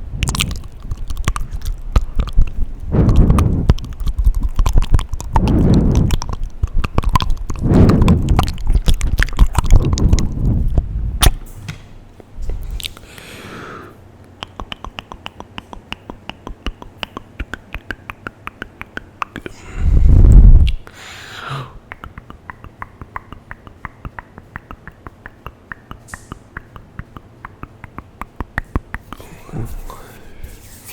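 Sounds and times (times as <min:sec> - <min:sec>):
air rumbling on microphone: 0:00.0 - 0:13.0, 0:19.5 - 0:20.9
mouth clicks and lip smacks: 0:00.1 - 0:11.4, 0:12.5 - 0:13.1, 0:14.2 - 0:20.9, 0:21.8 - 0:29.3
soft breathy sound: 0:19.5 - 0:21.8.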